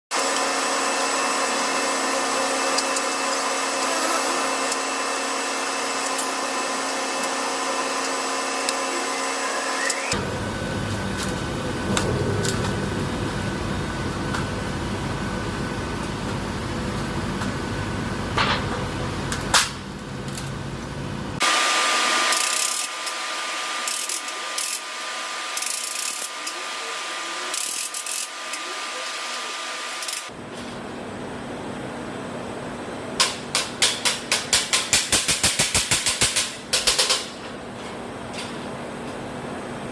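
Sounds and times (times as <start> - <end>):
power tool motor whine: 0.2 - 10.5.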